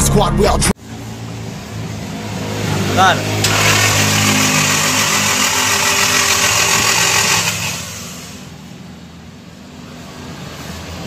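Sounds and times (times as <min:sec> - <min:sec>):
engine at raised revs: 0:00.9 - 0:08.8.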